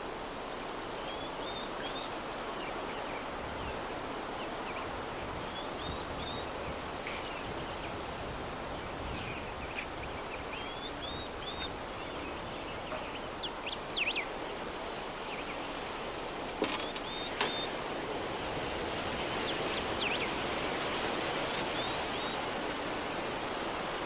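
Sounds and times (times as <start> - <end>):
soft breeze: 0.0 - 24.0
distant small birds chirping: 8.7 - 22.8.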